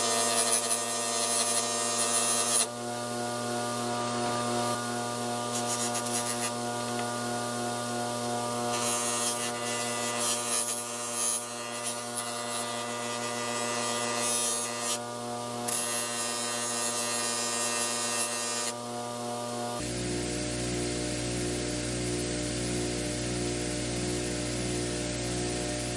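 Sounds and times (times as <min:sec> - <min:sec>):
buffing wheel motor hum: 0:02.6 - 0:08.7.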